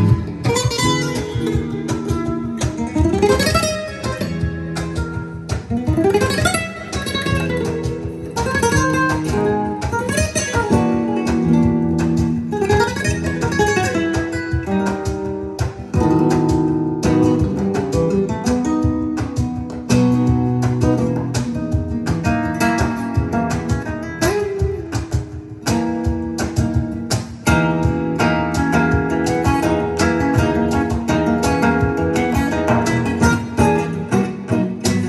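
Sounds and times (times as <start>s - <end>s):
acoustic guitar music: 0.0s - 35.0s.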